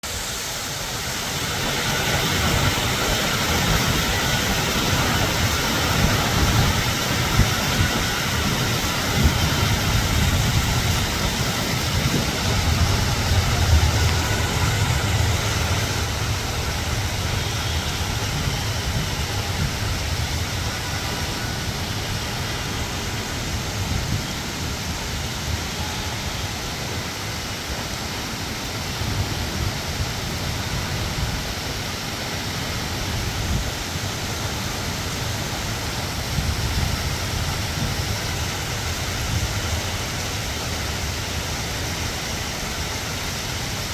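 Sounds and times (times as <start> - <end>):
heavy rain falling: 0.0 - 43.9
low rumble: 8.3 - 22.4.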